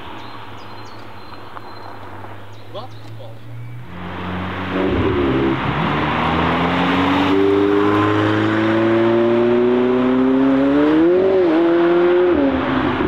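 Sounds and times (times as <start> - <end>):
sports car engine accelerating: 3.4 - 13.0.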